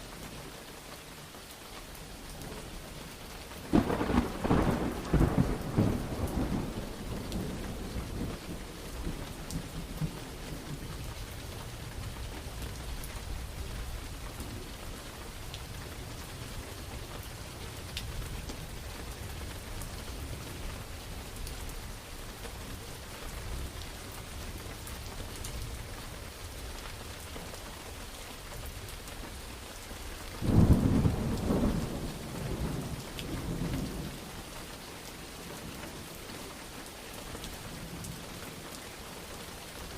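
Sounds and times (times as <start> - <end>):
steady rain falling: 0.0 - 39.9
loud thunderclap: 3.7 - 8.4, 30.4 - 34.0
thunder rumble: 3.7 - 10.9, 30.4 - 34.2.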